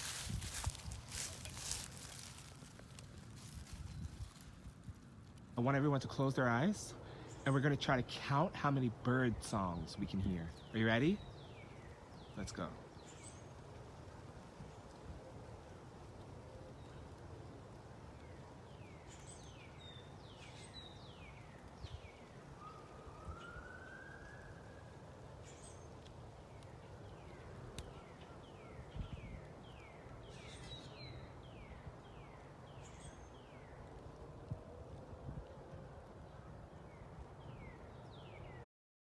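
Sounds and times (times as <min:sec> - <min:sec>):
birds singing: 0:00.0 - 0:04.7
faint low rumble: 0:00.0 - 0:05.6.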